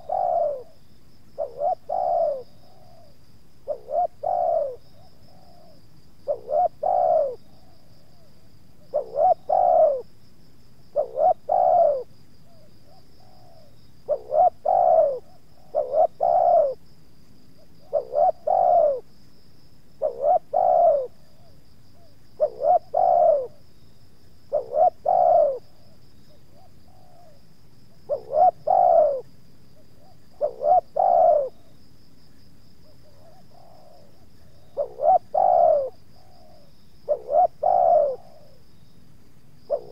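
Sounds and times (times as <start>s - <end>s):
dove cooing: 0.0s - 10.1s, 10.9s - 16.8s, 17.6s - 19.1s, 20.0s - 23.6s, 24.4s - 31.8s, 32.8s - 38.7s, 39.7s - 39.9s.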